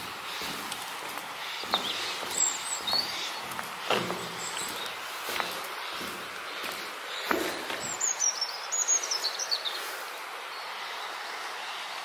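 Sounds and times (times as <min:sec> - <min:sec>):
background hiss: 0:00.0 - 0:12.0
small bird singing: 0:01.4 - 0:06.0, 0:06.8 - 0:09.9.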